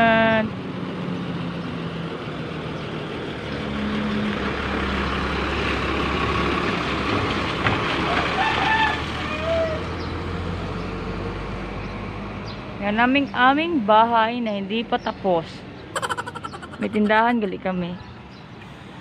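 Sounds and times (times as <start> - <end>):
chicken clucks: 16.0 - 17.2.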